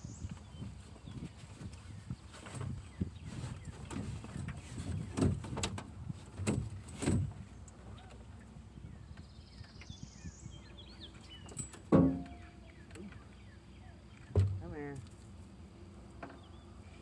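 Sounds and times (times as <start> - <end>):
small birds chirping: 8.7 - 15.0
dull knocks and thumps: 11.9 - 12.5, 14.3 - 14.8.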